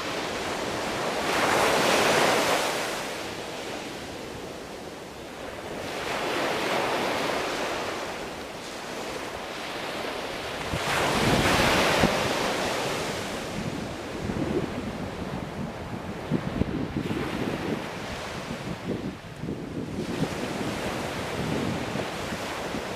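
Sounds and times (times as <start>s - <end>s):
sea waves breaking on shore: 0.0s - 22.9s
wind rumble on microphone: 10.2s - 22.9s.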